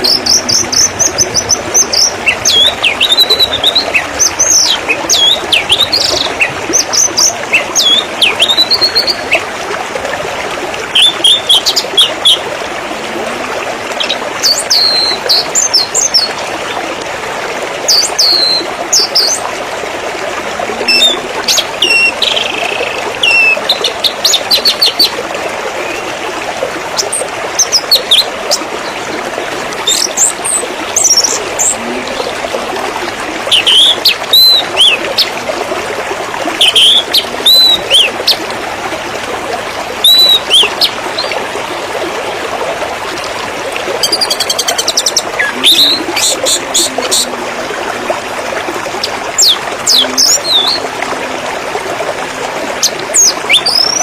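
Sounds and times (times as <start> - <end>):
songbirds chirping and whistling: 0.0 - 9.4, 33.5 - 35.3, 36.6 - 38.4, 40.0 - 41.4, 49.4 - 50.8, 53.2 - 54.0
trickling splashing water: 0.0 - 54.0.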